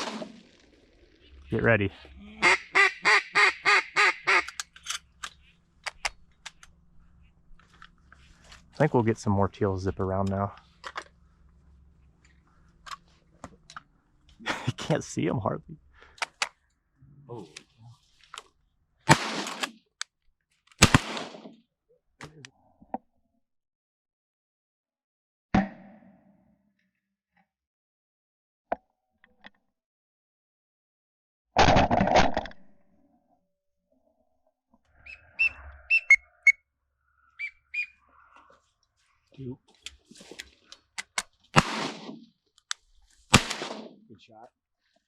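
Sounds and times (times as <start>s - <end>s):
shotgun blasts: 0.0s - 0.4s, 19.1s - 19.7s, 20.8s - 21.5s, 41.5s - 42.2s, 43.3s - 44.0s
duck quacking: 2.2s - 4.6s
small clicks: 4.4s - 6.8s.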